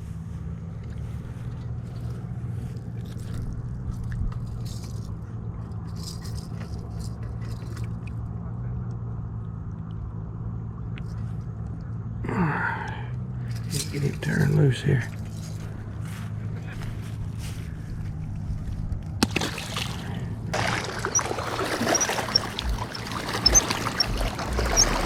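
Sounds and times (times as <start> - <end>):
low engine-like hum: 0.0 - 25.0
light clicks and scrapes: 0.8 - 8.2, 11.0 - 11.9, 13.4 - 19.2.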